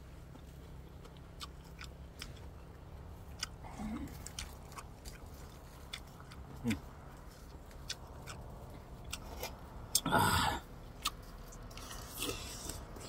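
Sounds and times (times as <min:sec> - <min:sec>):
chewing with lip smacks: 0:00.0 - 0:13.0
low voice hum: 0:03.5 - 0:04.3.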